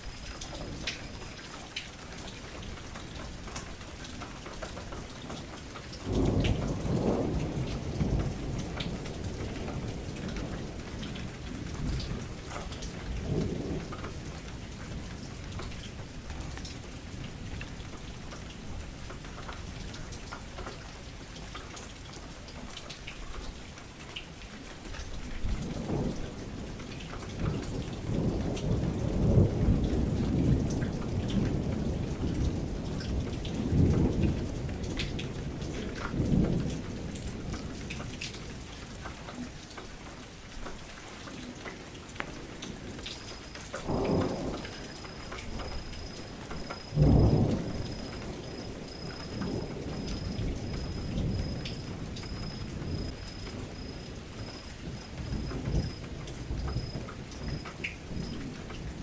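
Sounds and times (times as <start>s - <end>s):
steady rain: 0.0s - 59.0s
thunder rumbling: 4.9s - 18.2s, 25.4s - 39.0s, 41.6s - 59.0s.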